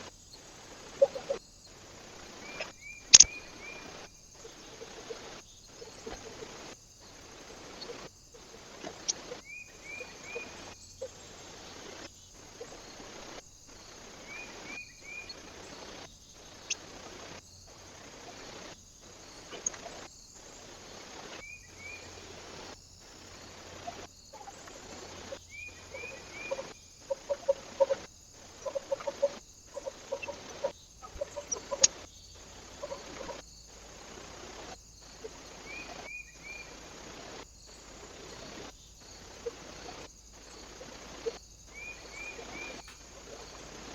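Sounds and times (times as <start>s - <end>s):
bird chirping: 0.0s - 22.6s, 23.3s - 43.9s
steady outdoor hiss: 0.0s - 43.9s
bird clucking calls: 0.7s - 1.4s, 2.1s - 6.6s, 23.8s - 33.4s, 40.6s - 43.9s.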